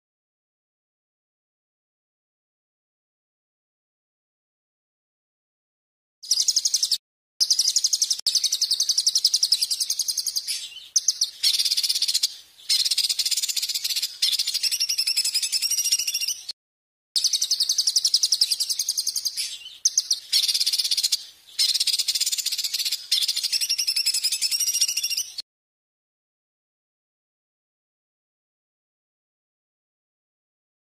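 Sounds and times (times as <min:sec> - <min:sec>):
songbird trilling: 0:06.3 - 0:16.5, 0:17.2 - 0:25.4.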